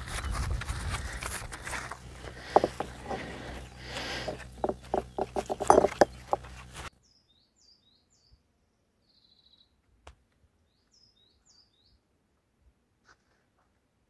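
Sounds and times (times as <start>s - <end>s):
rough noisy background: 0.0s - 6.9s
songbird chirping and trilling: 7.0s - 9.8s, 10.6s - 12.0s.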